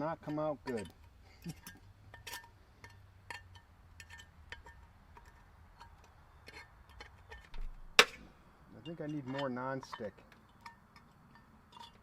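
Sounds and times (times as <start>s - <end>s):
light metallic clinks: 8.8s - 12.0s.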